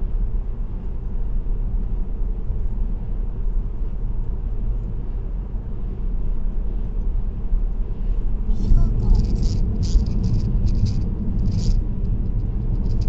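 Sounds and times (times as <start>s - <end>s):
car road rumble: 0.0s - 13.0s.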